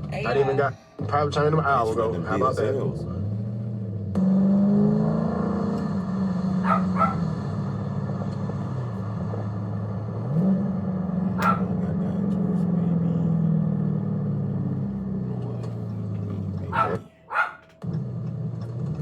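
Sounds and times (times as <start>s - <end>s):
car engine running at low speed: 0.0s - 19.0s
short sharp yelps: 6.6s - 7.2s, 11.4s - 11.7s.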